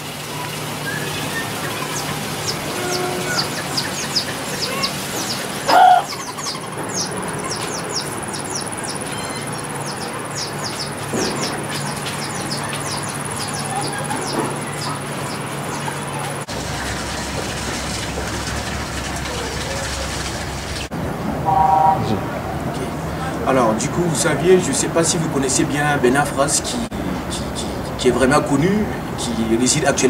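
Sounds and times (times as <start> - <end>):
small birds chirping: 0.3 - 16.5
high-pitched whine: 21.4 - 22.4.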